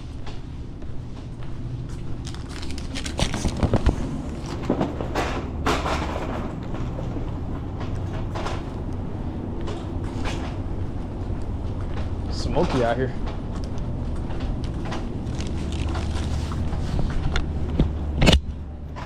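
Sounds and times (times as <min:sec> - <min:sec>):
metal clanks and knocks: 0:04.6 - 0:08.8.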